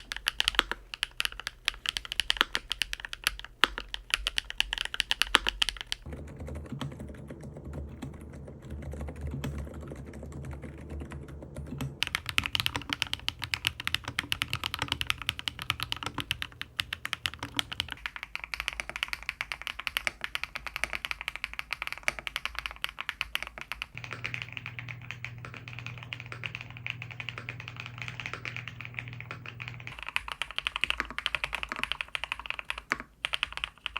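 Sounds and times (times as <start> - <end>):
fast typing on mechanical keyboard: 0.0 - 33.9.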